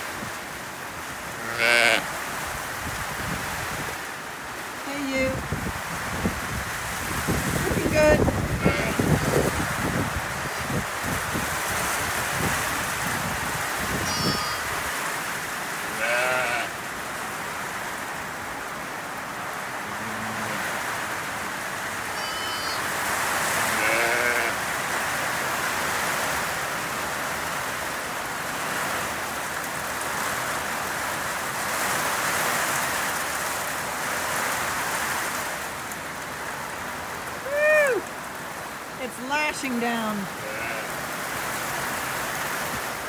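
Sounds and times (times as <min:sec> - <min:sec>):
heavy rain on roof: 0:00.0 - 0:39.0, 0:39.9 - 0:43.0
lamb bleating: 0:01.4 - 0:02.0, 0:08.6 - 0:09.1, 0:14.0 - 0:14.7, 0:15.9 - 0:16.7, 0:22.2 - 0:22.8, 0:23.7 - 0:24.6, 0:40.4 - 0:40.9
low sheep call: 0:01.4 - 0:02.1, 0:14.0 - 0:14.8, 0:15.9 - 0:16.7, 0:22.1 - 0:22.9, 0:23.6 - 0:24.6, 0:40.4 - 0:41.0.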